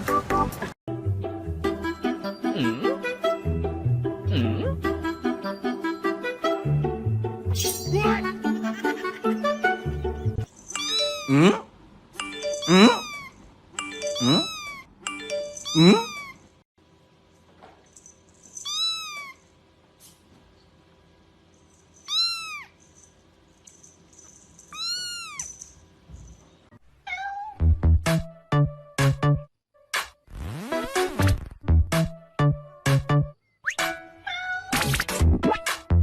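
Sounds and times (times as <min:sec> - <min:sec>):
cat meowing: 0:10.8 - 0:11.5, 0:12.6 - 0:13.4, 0:14.2 - 0:14.9, 0:15.7 - 0:16.4, 0:18.7 - 0:19.4, 0:22.1 - 0:22.8, 0:24.7 - 0:25.5, 0:27.0 - 0:27.6, 0:34.2 - 0:34.8
music with thumping beat: 0:32.8 - 0:33.9.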